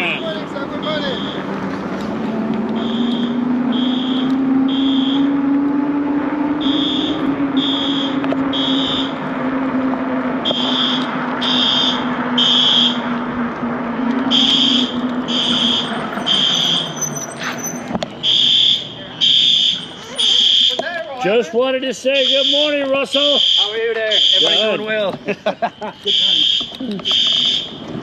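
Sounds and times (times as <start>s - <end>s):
smoke alarm beeping: 0.9s - 1.4s, 2.8s - 5.4s, 6.6s - 9.2s, 22.2s - 24.8s, 25.7s - 27.7s.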